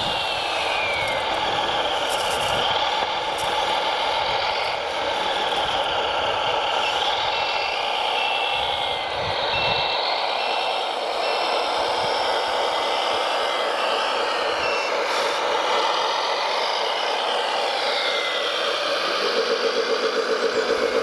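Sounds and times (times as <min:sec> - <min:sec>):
reversing alarm beeping: 0:00.0 - 0:16.0
heavy machine engine whining: 0:00.0 - 0:21.0.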